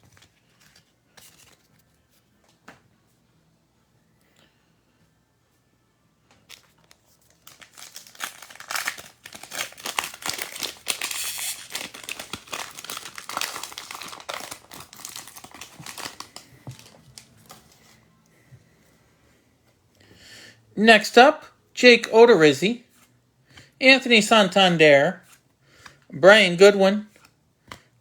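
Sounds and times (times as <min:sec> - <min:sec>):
wrapper tearing and crinkling: 0:06.5 - 0:17.8.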